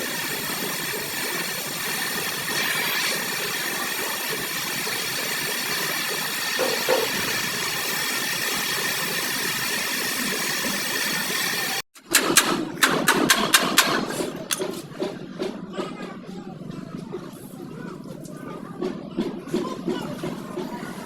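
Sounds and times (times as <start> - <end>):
machine hissing and whining: 0.0 - 11.8.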